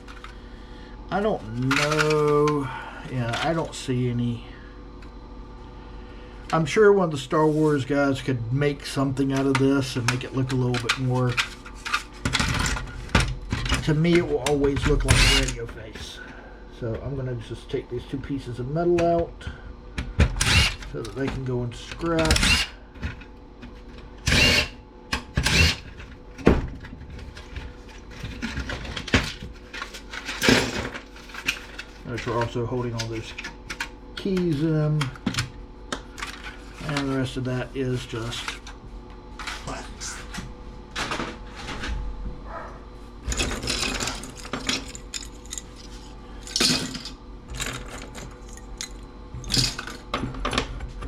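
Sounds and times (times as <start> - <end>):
faint steady hum: 0.0 - 51.0
plastic and metal parts rattling: 1.6 - 2.3, 26.8 - 34.4, 43.3 - 48.9
power drill whirring: 15.1 - 15.5, 20.4 - 20.8, 22.3 - 22.8, 24.2 - 24.8, 25.4 - 25.8.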